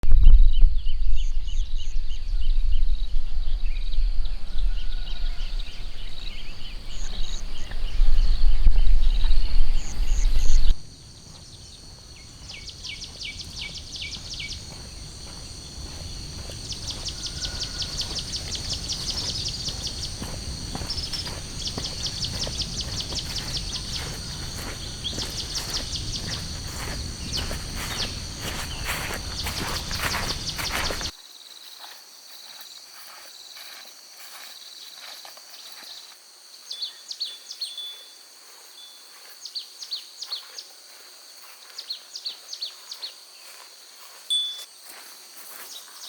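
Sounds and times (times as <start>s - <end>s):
outdoor background: 0.0s - 31.4s
insects chirping: 4.4s - 37.9s.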